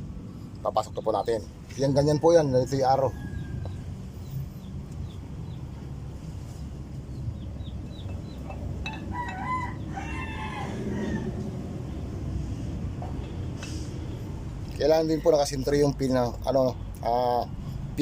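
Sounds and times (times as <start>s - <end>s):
rooster crowing: 1.8s - 4.0s, 8.8s - 11.6s.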